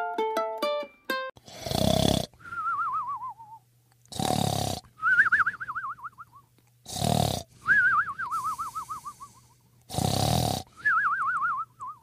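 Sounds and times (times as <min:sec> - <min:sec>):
cartoon snoring: 0:01.4 - 0:02.4, 0:04.1 - 0:04.9, 0:06.9 - 0:07.5, 0:08.4 - 0:10.7
falling whistle: 0:02.4 - 0:03.6, 0:07.7 - 0:09.4, 0:10.8 - 0:12.0.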